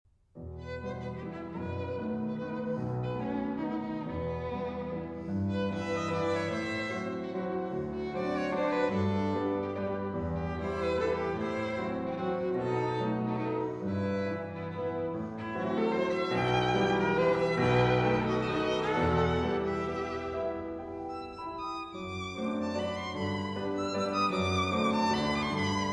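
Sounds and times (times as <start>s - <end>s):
violin melody: 0.5s - 25.9s
low cello notes: 8.0s - 21.4s.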